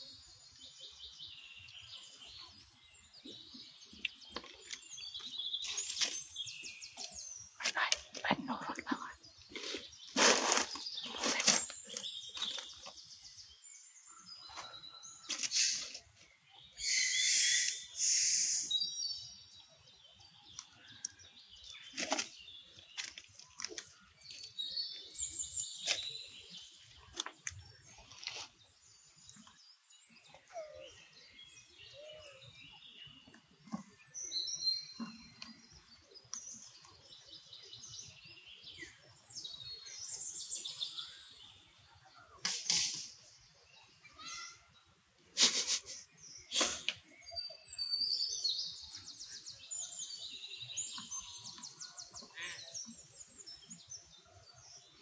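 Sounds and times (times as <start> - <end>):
birds chirping: 0.0 - 55.0
rustles: 4.0 - 8.4, 9.4 - 13.2, 14.5 - 16.3, 25.2 - 28.8, 42.4 - 43.2
short hissy bursts: 16.9 - 18.7.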